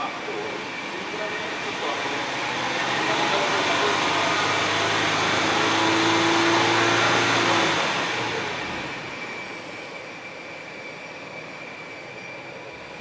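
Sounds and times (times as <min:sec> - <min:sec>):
car engine and exhaust running: 0:01.2 - 0:09.9.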